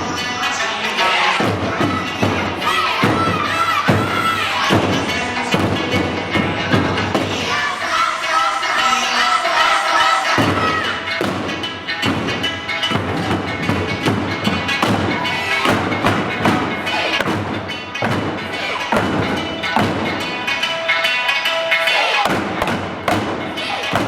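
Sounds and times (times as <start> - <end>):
backing music: 0.0 - 24.0
taiko drums struck in unison: 1.4 - 7.5, 10.4 - 20.8, 22.2 - 24.0.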